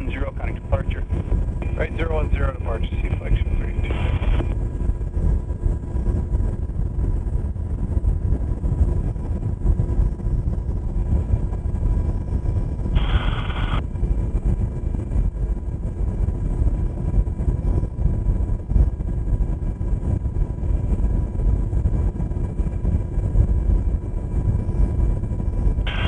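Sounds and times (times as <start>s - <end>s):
radio burst: 0.0s - 4.6s, 13.0s - 13.8s
faint steady tones: 0.0s - 7.4s, 9.7s - 17.9s, 24.1s - 26.0s
helicopter rotor and engine drone: 0.0s - 26.0s.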